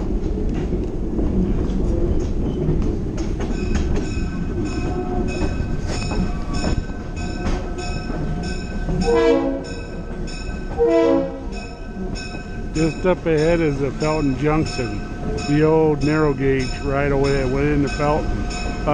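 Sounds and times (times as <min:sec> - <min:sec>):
train rumbling: 0:00.0 - 0:18.9
train bell ringing: 0:03.4 - 0:18.9
train horn blast: 0:09.0 - 0:09.8, 0:10.8 - 0:11.6.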